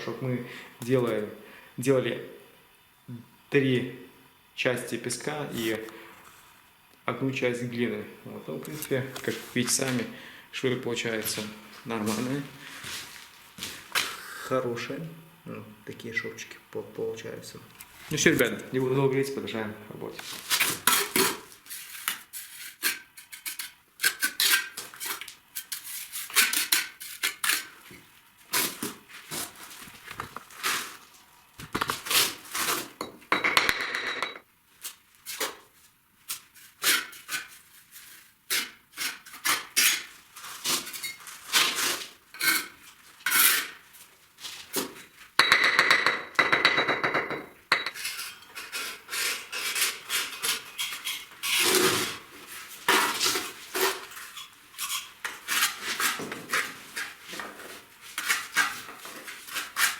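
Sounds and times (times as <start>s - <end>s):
trowel scraping mortar: 20.3s - 29.6s, 36.4s - 43.8s, 47.9s - 59.9s
trowel knocking on bricks: 45.4s - 48.0s.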